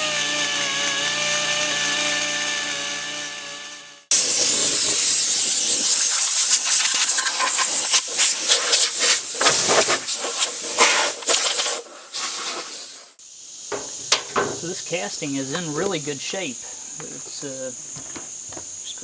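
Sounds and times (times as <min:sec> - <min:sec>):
loud hissing noise: 0:04.1 - 0:19.0.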